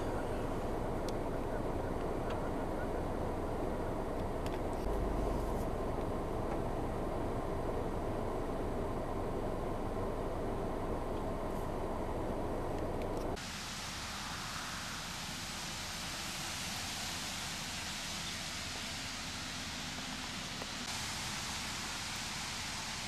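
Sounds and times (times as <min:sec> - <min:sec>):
deep rumbling noise: 0:00.0 - 0:13.4
heavy rain falling: 0:13.4 - 0:23.0.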